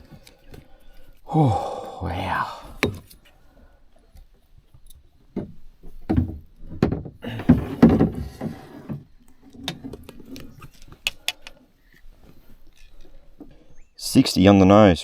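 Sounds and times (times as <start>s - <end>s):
fish thumping and knocking: 2.6s - 3.1s, 5.3s - 9.1s.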